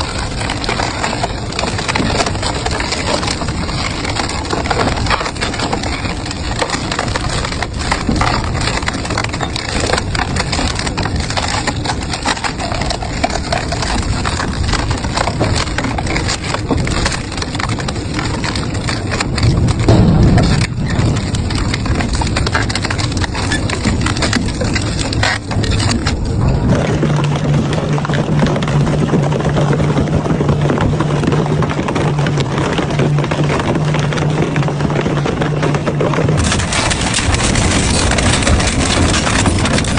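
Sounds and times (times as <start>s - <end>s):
industrial shredder crunching scrap: 0.0s - 39.9s
low grinding: 13.8s - 28.1s, 36.3s - 39.9s.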